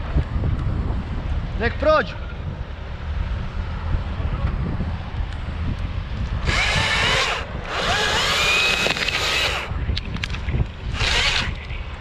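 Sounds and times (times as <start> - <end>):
wind rumble on microphone: 0.0 - 12.0
chainsaw cutting: 6.4 - 9.7, 11.0 - 11.6.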